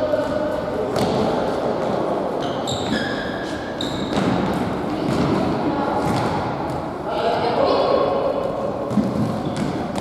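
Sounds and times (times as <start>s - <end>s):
voices echoing in hall: 0.0s - 10.0s
shoes squeaking on floor: 2.4s - 4.4s.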